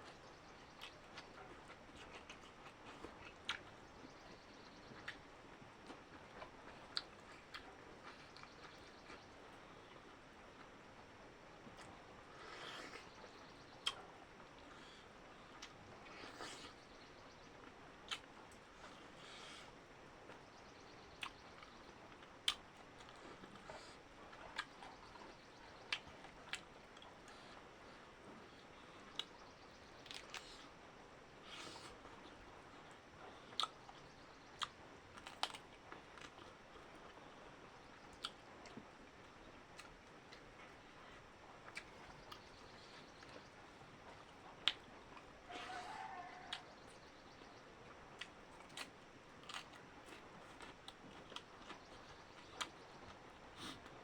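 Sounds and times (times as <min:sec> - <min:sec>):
noisy eating sound: 0:00.0 - 0:54.0
person chewing: 0:00.8 - 0:03.7, 0:04.9 - 0:09.2, 0:33.5 - 0:33.8, 0:44.0 - 0:45.8, 0:48.2 - 0:52.7
mouth smacks and clicks: 0:33.6 - 0:33.8.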